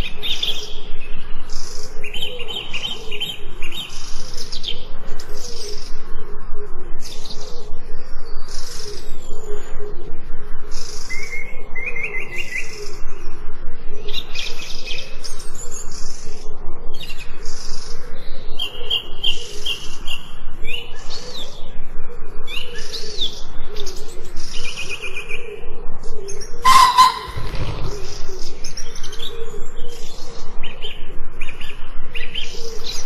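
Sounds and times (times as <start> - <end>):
birds chirping and trilling: 0.0 - 33.0
sudden sharp burst: 26.6 - 28.3
low wavering bird call: 26.6 - 28.5.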